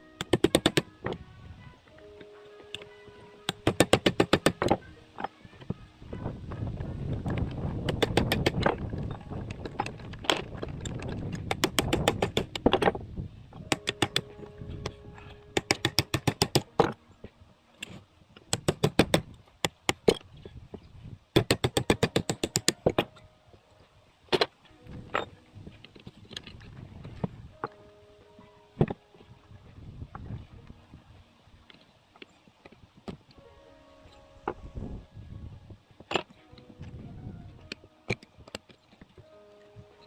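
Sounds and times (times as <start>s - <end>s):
low rumbling handling noise: 4.5s - 21.5s.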